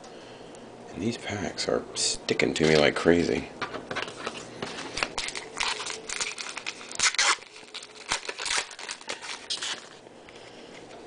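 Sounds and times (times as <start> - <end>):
foil wrapper tearing and crinkling: 4.0 - 10.0.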